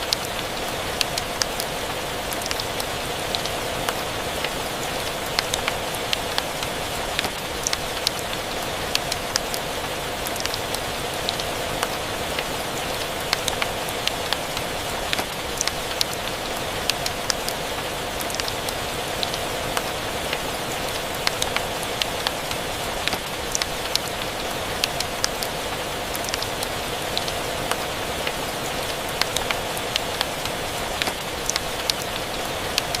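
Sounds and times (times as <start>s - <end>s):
steady rain: 0.0s - 33.0s.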